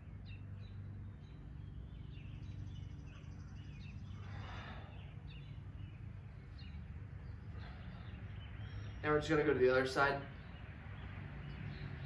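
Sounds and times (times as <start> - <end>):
faint bird chirps: 0.0 - 9.3
low hum: 0.0 - 9.5.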